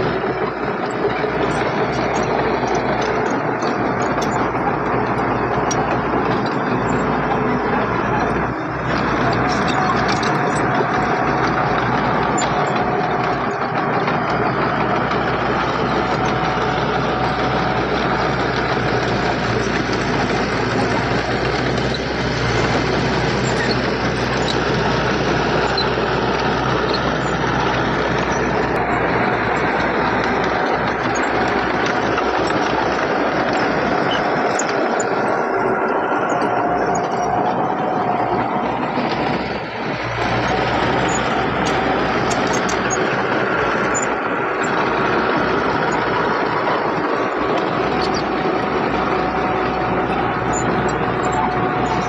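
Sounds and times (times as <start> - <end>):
heavy diesel machinery running: 0.0 - 52.0.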